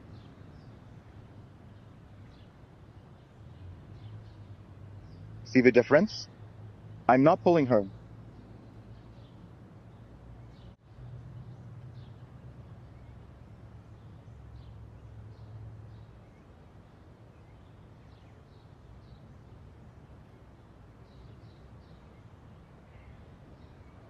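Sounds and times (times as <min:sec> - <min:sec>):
low steady hum: 0:00.0 - 0:24.0
small birds chirping: 0:00.0 - 0:24.0.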